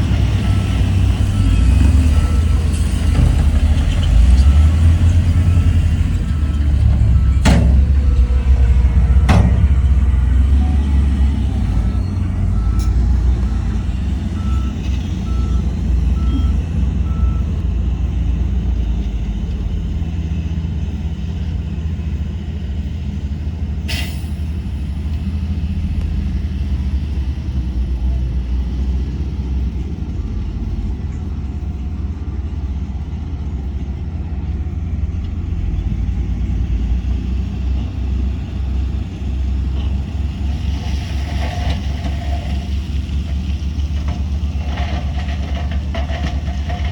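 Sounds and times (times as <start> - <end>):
diesel machinery rumbling: 0.0 - 46.9
reversing alarm beeping: 10.5 - 17.6.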